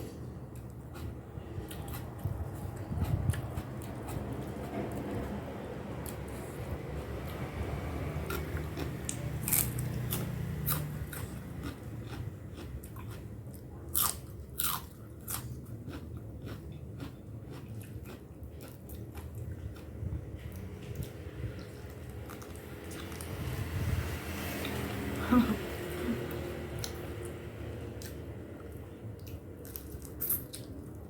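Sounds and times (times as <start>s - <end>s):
chewing and crunching: 0.0s - 5.3s, 8.2s - 23.6s, 28.0s - 31.0s.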